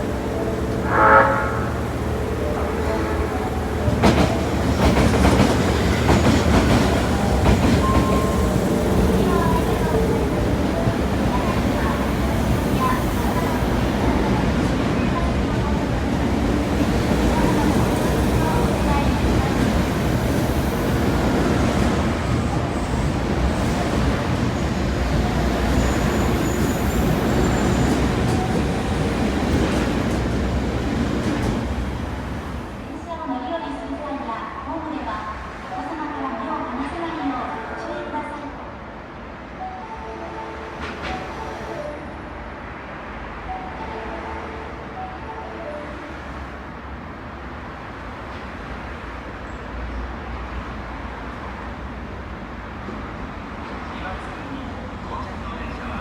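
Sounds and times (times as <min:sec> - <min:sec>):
train rumble: 0:00.0 - 0:35.8
brief steady tone: 0:00.8 - 0:01.8.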